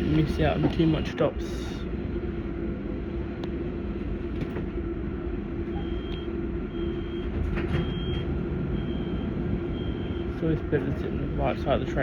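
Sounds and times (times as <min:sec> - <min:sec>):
train equipment hum: 0:00.0 - 0:12.0
door warning beeps: 0:05.7 - 0:10.3.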